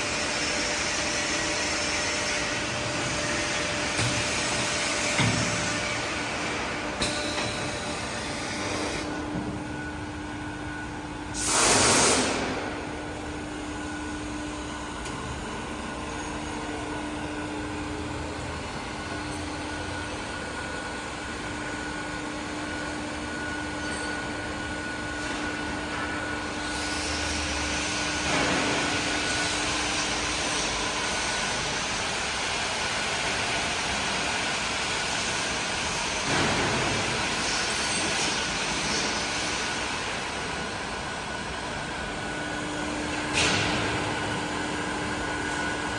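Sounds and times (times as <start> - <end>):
short loud hiss: 11.4 - 12.5.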